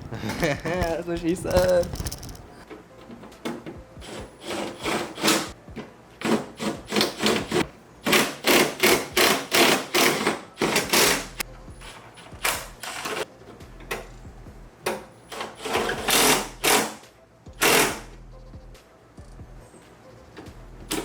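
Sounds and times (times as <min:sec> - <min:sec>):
ratchet wrench clicking: 0:01.5 - 0:02.5, 0:06.9 - 0:13.2, 0:17.6 - 0:18.1.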